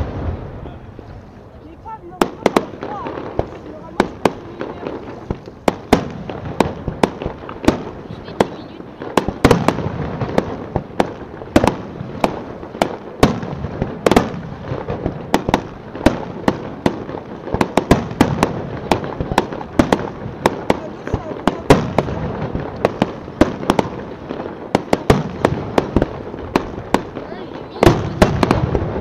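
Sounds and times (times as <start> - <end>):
fireworks bursting with sharp bangs: 0.0 - 29.0.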